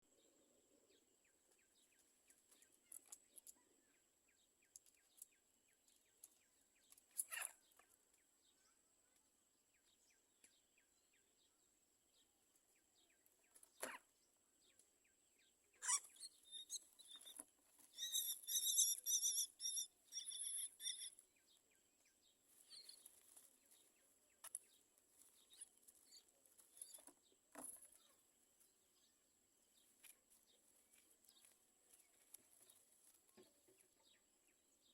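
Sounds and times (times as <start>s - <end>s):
high harsh bird calls: 15.8s - 21.2s
faint clicks and rustling: 29.8s - 34.0s.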